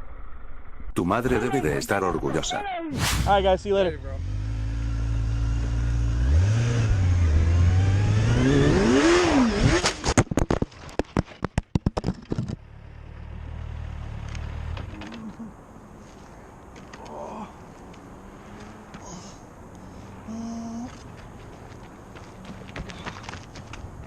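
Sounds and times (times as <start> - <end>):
motorcycle engine accelerating: 3.1 - 10.0.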